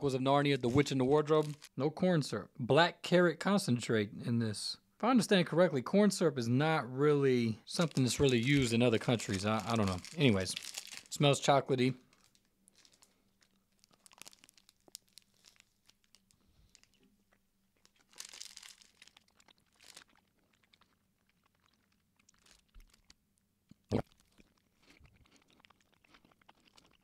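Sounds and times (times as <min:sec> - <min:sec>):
wrapper rustling: 0:00.6 - 0:01.7, 0:07.7 - 0:17.0, 0:17.8 - 0:20.6, 0:21.9 - 0:23.1
faint chewing: 0:12.2 - 0:27.0.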